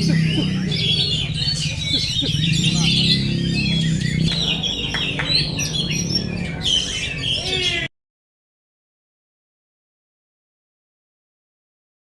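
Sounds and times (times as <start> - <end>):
steady low hum: 0.0 - 7.4
bird singing: 0.0 - 7.9.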